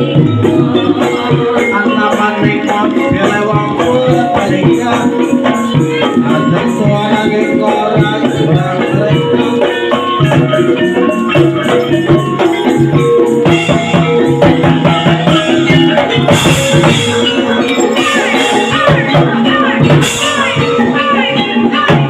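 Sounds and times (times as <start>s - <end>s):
fast percussion music: 0.0s - 22.0s.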